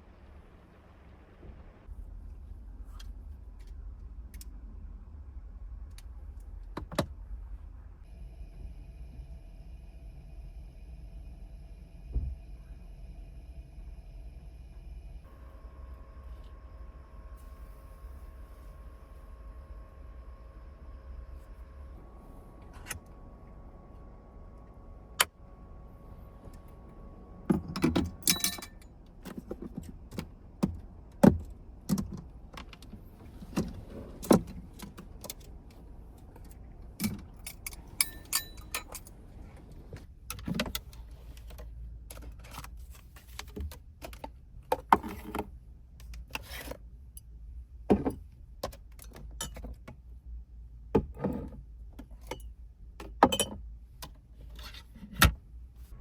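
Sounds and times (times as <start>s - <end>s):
steady low hum: 0.0s - 43.4s.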